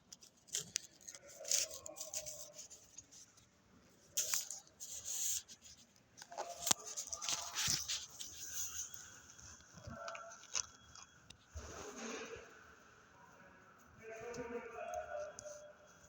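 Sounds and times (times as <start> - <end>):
rustling and scraping: 0.0 - 12.9.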